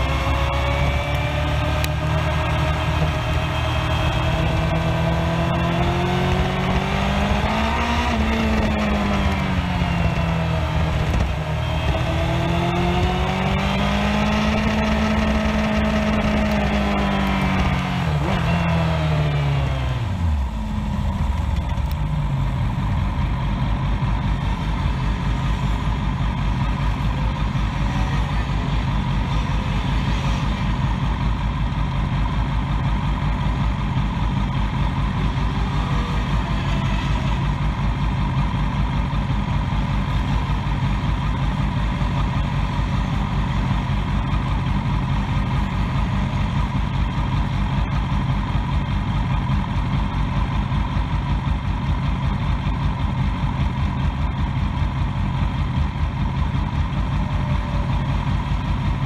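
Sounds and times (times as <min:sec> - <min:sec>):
motorcycle engine revving and idling: 0:00.0 - 0:59.0.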